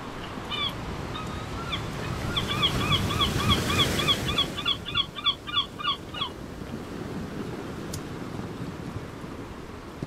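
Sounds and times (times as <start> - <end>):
surf washing in: 0.0 - 10.0
bird calling: 0.2 - 6.4.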